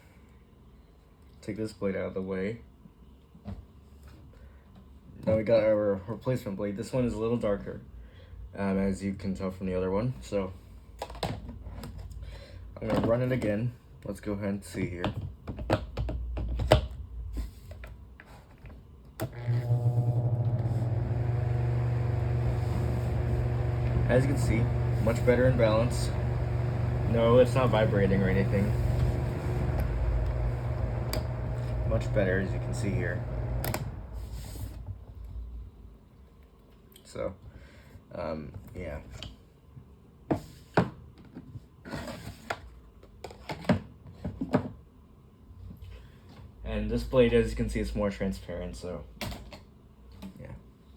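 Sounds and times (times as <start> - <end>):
electric fan motor humming: 19.3 - 35.0.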